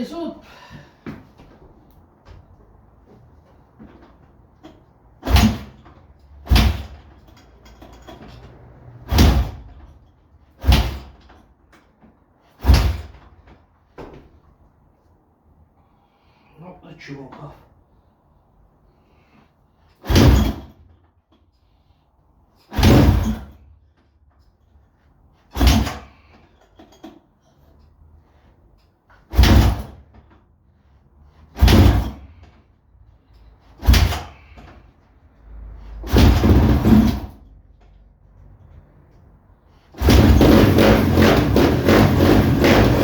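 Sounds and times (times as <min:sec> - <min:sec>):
dirt bike engine kickstarting: 0:40.0 - 0:43.0.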